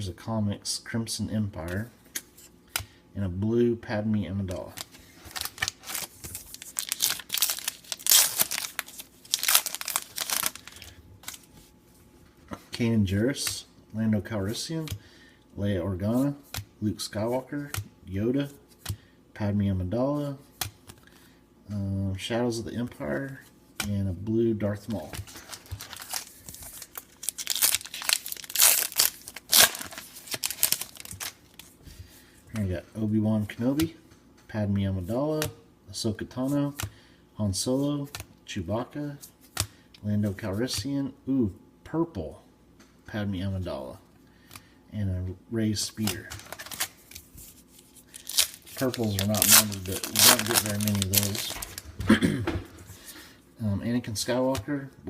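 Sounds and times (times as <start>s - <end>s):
card pack wrapper tearing: 5.3s - 11.4s, 25.3s - 31.4s, 46.0s - 47.3s, 48.0s - 51.8s.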